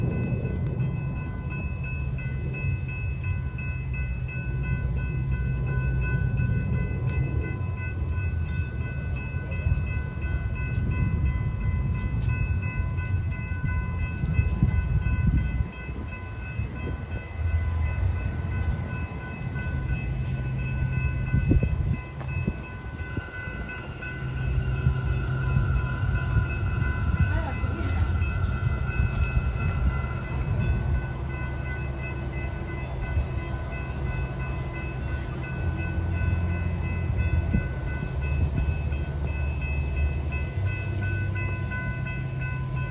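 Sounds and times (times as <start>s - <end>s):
train rumbling with high whine: 0.0s - 42.9s.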